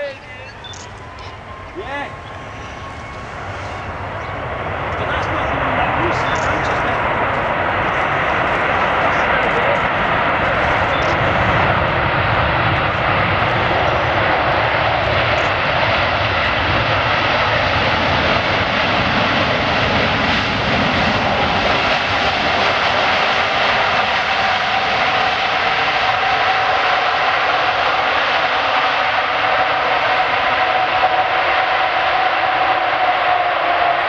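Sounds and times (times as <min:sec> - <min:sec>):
faint steady whine: 0:00.0 - 0:16.2
jet engines roaring: 0:00.0 - 0:34.0.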